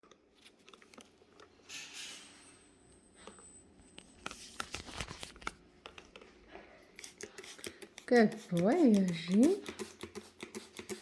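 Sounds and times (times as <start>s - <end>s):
spray bottle hiss: 7.0s - 11.0s.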